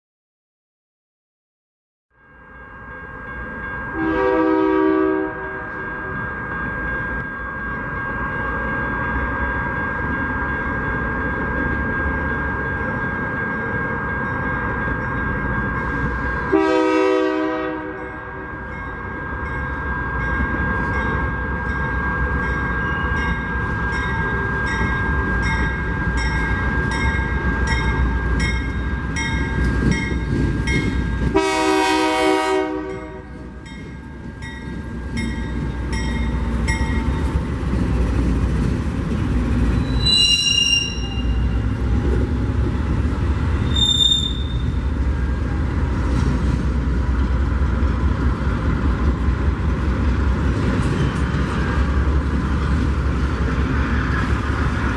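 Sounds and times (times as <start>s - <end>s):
railroad crossing bell ringing: 2.1s - 54.9s
train rumbling by: 2.5s - 54.9s
train horn: 4.0s - 5.9s, 16.5s - 18.4s, 31.3s - 33.5s
train wheel squeals: 18.7s - 31.3s, 39.5s - 42.3s, 43.5s - 45.0s.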